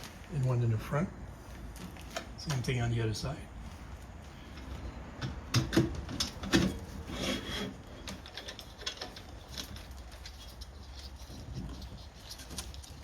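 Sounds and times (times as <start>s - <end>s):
metal scrape: 6.4s - 13.0s
metal parts knocking and clicking: 8.0s - 13.0s.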